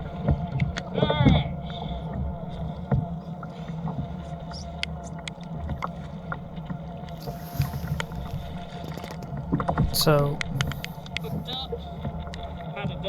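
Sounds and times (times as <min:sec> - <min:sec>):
water slapping against hull: 0:00.0 - 0:13.0.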